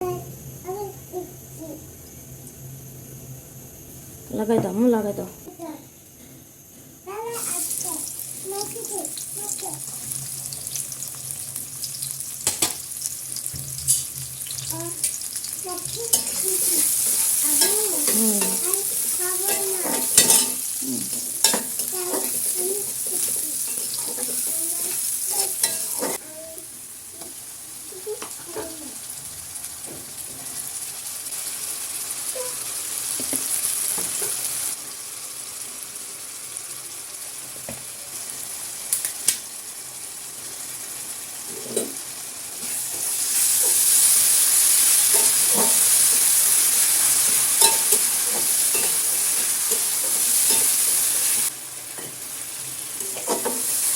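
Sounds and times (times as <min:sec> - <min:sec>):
food sizzling in a pan: 0:00.0 - 0:53.9
spatula scraping a pan: 0:16.0 - 0:26.2.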